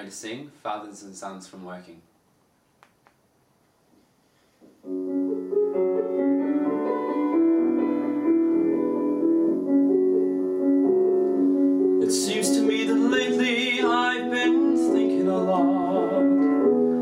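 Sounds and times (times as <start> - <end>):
piano chords: 4.8 - 17.0
person singing: 12.0 - 17.0.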